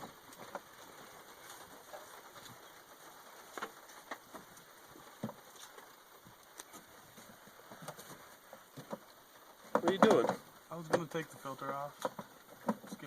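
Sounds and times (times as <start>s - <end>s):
faint light clicks and knocks: 3.5s - 13.0s.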